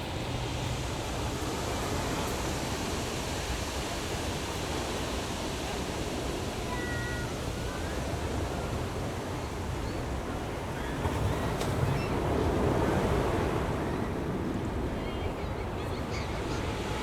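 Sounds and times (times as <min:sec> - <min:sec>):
ocean surf breaking on shore: 0:10.4 - 0:17.0.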